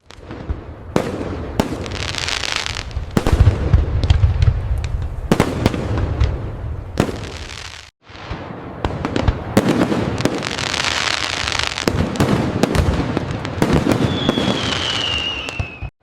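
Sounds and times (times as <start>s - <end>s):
fireworks bangs and booms: 0.0s - 15.9s
fireworks crackling: 0.0s - 15.9s
high whistle: 14.0s - 15.9s.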